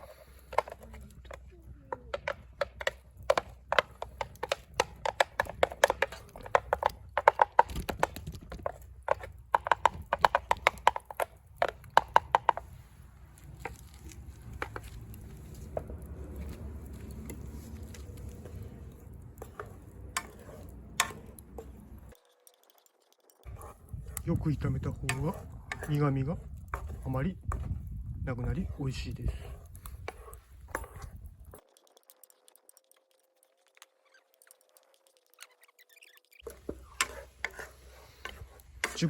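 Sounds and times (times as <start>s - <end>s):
utensil tapping and scraping in a pan: 0.0s - 35.2s, 36.4s - 39.0s.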